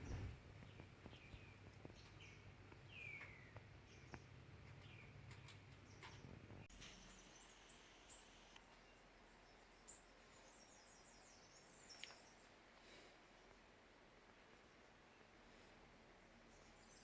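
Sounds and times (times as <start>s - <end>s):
faint high bird chirps: 0.0s - 12.6s.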